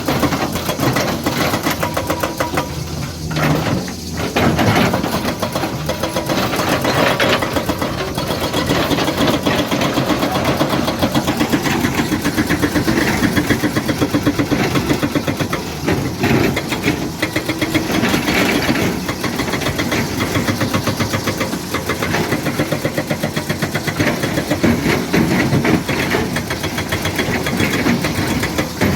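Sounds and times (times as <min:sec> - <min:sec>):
excavator diesel engine chugging: 0:00.0 - 0:28.9.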